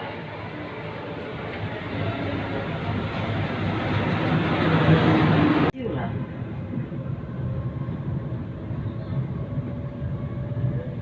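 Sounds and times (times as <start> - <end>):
train running low rumble: 0.0 - 11.0
faint whining tones: 6.2 - 11.0.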